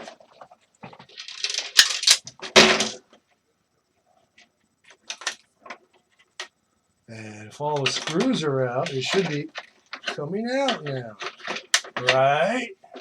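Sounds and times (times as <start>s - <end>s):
heater parts rattling: 0.0s - 3.0s, 7.6s - 13.0s.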